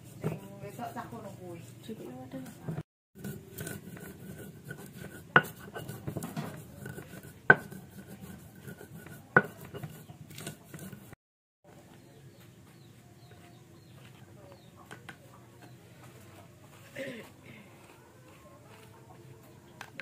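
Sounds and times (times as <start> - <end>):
utensils and dishes clattering: 2.3 - 11.2.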